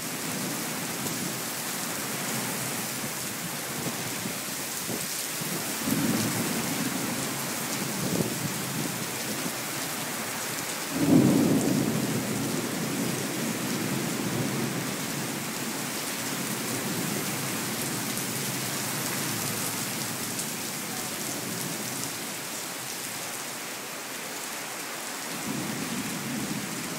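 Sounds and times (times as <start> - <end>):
steady rain hiss: 0.0 - 26.9
thunder rumbling: 11.0 - 14.9.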